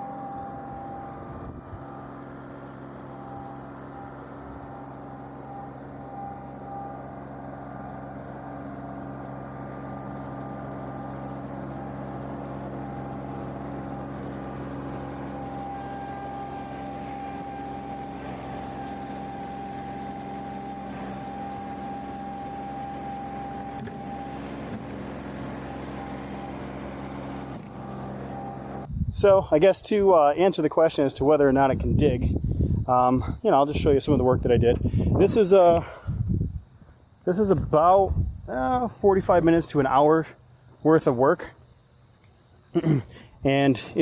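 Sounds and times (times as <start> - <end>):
thin high whine: 0.0 - 32.0
tractor diesel engine running: 0.0 - 44.0.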